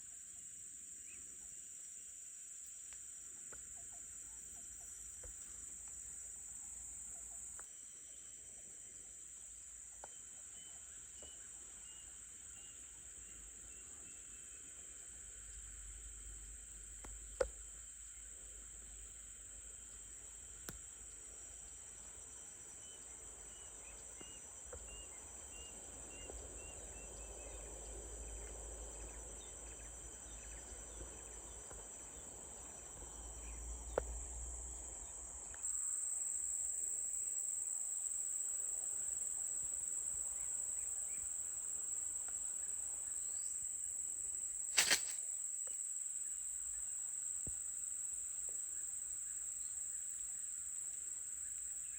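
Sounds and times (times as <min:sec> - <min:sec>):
insects chorus: 0:00.0 - 0:51.9
sharp click: 0:44.7 - 0:45.8.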